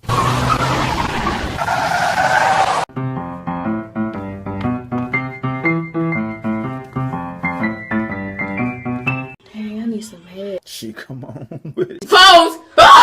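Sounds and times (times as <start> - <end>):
brisk piano tune: 2.9 - 9.4.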